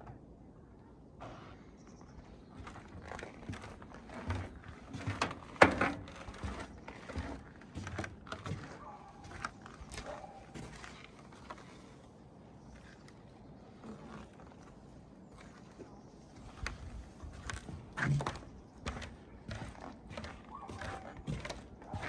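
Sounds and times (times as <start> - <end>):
footsteps crunching on snow: 16.4 - 22.0.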